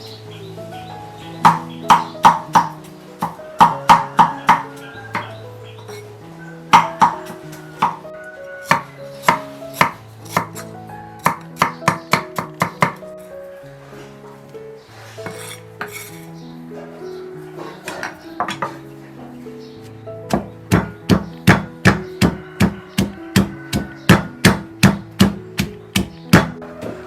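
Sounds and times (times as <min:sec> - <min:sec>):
background music: 0:00.0 - 0:27.0
knife chopping food: 0:01.5 - 0:05.3, 0:06.8 - 0:08.0, 0:08.6 - 0:13.0, 0:20.3 - 0:27.0.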